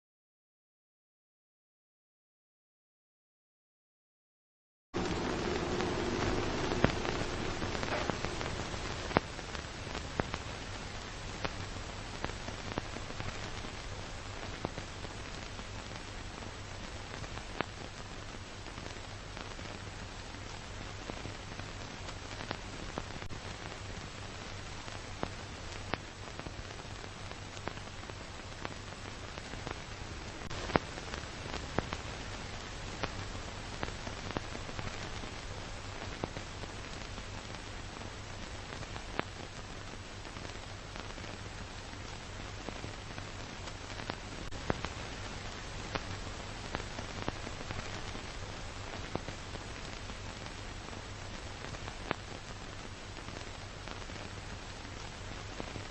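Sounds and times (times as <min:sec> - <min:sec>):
low hum: 0:05.0 - 0:14.5
film soundtrack surface noise: 0:05.0 - 0:55.9.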